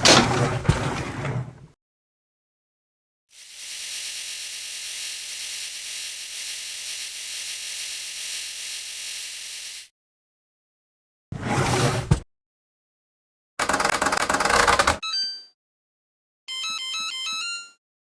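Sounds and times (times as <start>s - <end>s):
washing machine hissing: 3.3s - 9.9s.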